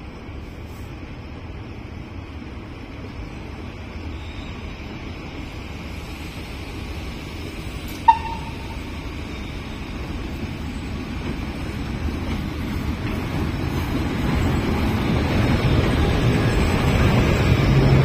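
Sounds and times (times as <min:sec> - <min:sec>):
train low rumble: 0:00.0 - 0:18.0
sharp high tone: 0:08.1 - 0:09.1.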